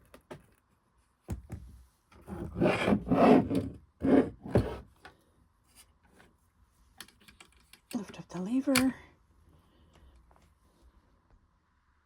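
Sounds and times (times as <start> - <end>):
sewing machine scraping on surface: 2.3 - 4.8.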